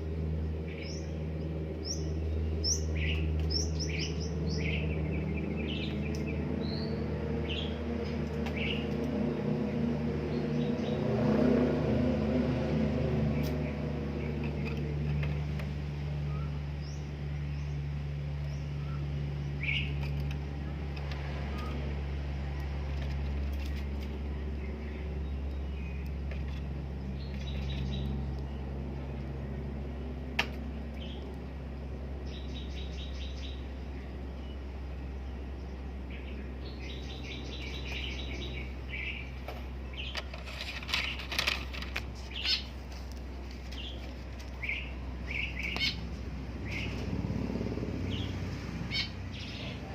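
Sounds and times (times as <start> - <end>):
steady low hum: 0.0 - 49.9
bird chirping and trilling: 0.7 - 9.5, 18.4 - 20.3, 32.2 - 42.8, 44.6 - 47.1, 48.0 - 49.9.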